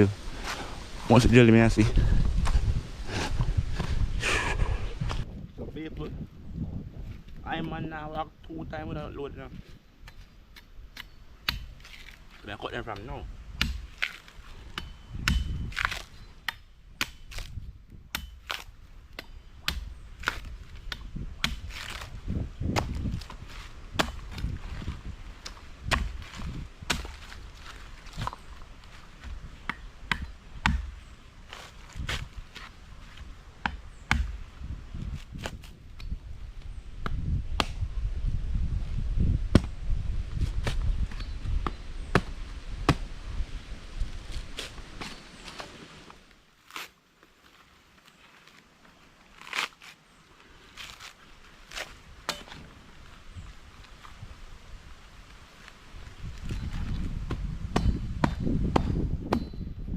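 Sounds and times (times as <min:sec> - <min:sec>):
blade chopping coconuts: 0:12.9 - 0:17.5, 0:18.1 - 0:22.1, 0:25.8 - 0:27.4, 0:29.2 - 0:31.0, 0:33.6 - 0:34.4, 0:39.5 - 0:39.7, 0:57.3 - 0:59.6.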